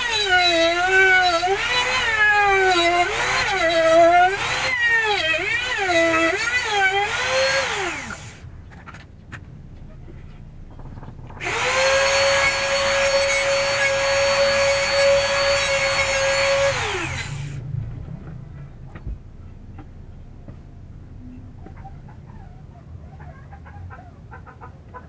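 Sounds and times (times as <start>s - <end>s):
router spinning down: 0.0s - 8.4s, 11.4s - 17.6s
trimmer router whining: 0.0s - 8.4s, 11.4s - 17.6s.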